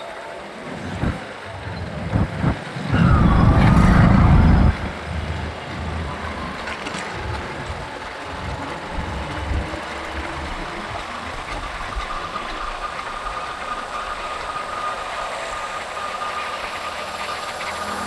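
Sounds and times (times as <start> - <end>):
road noise: 0.3 - 11.0
thin steady whine: 0.4 - 9.8.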